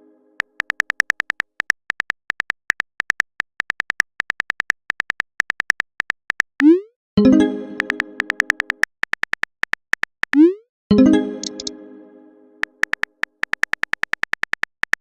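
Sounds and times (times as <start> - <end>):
phone keyboard typing clicks: 0.4 - 6.7, 7.8 - 10.5, 11.4 - 11.7, 12.6 - 15.0.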